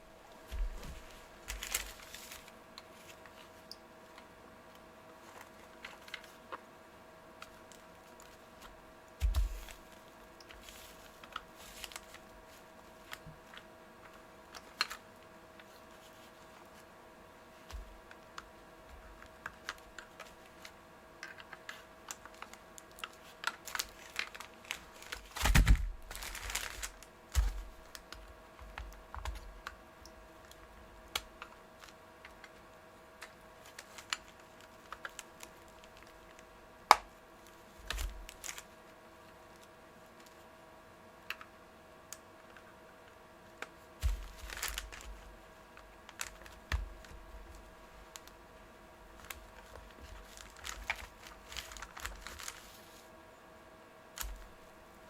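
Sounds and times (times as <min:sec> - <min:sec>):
scraping rustle: 0:00.4 - 0:03.6.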